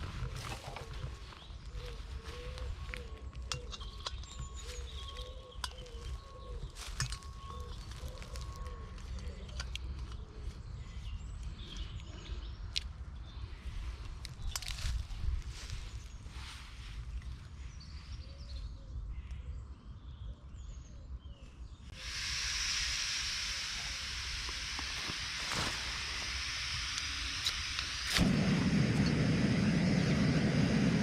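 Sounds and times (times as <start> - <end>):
faint birds chirping: 0.0 - 22.1
fire hissing and popping: 21.9 - 31.0.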